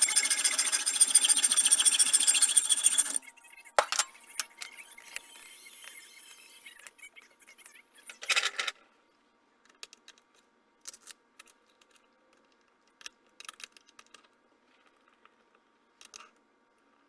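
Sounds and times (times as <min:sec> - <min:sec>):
metal workpieces clicking: 0:00.0 - 0:03.2, 0:03.8 - 0:04.8
scraping rasp: 0:00.0 - 0:03.2.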